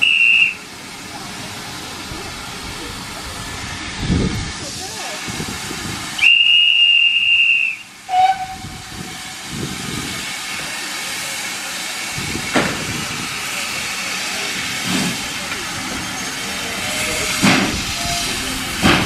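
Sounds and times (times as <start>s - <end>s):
high train whistle: 0.0s - 0.6s, 6.2s - 8.9s
moving train hiss: 0.0s - 19.0s.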